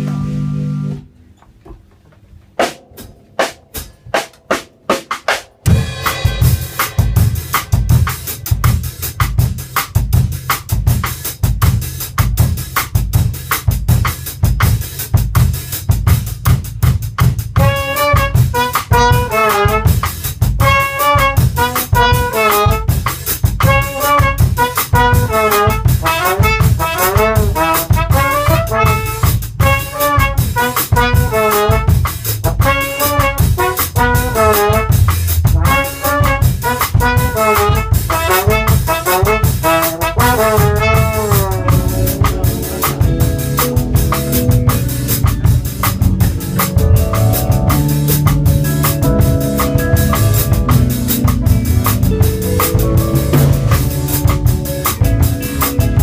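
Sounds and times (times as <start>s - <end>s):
drum kit: 0.0s - 1.1s, 1.7s - 56.0s
bass: 0.0s - 56.0s
brass lead melody: 5.6s - 9.1s, 17.4s - 56.0s.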